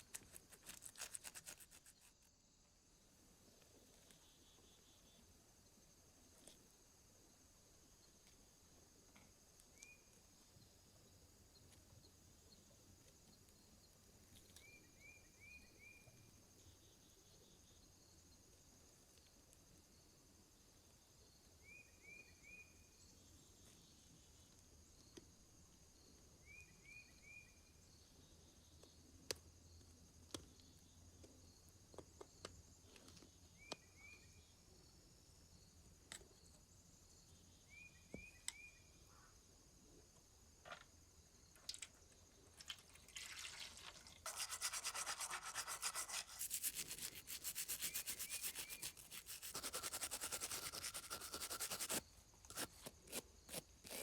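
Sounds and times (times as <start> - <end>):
brush scrubbing: 0.0 - 2.2, 44.2 - 52.8.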